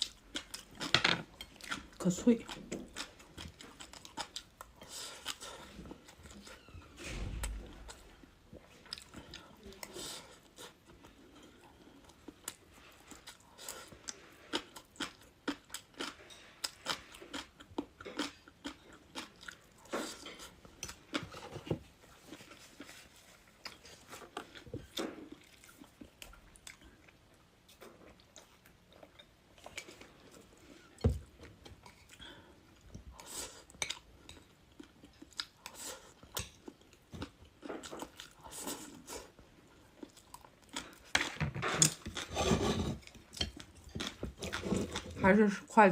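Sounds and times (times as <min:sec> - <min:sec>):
crunching and chewing food: 0:00.0 - 0:45.3
loud thump: 0:07.0 - 0:07.9.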